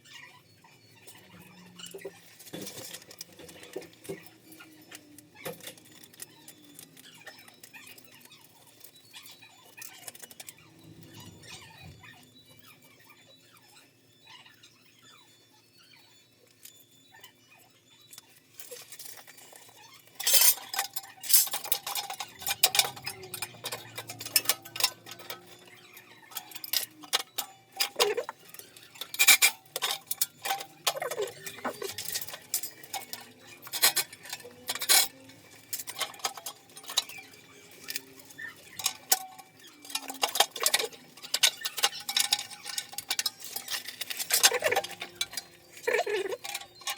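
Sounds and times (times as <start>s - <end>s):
metal pipe fittings and tools clinking: 1.8s - 8.9s, 18.5s - 46.9s.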